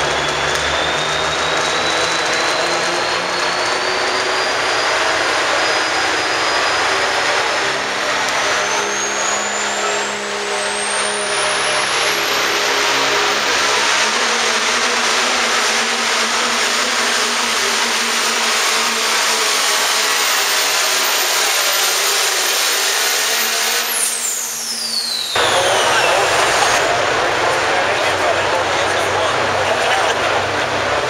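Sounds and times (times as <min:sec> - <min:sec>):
turbo whistle: 0:00.0 - 0:07.5, 0:08.3 - 0:14.2, 0:16.7 - 0:26.9
diesel truck engine at full throttle: 0:00.0 - 0:31.0.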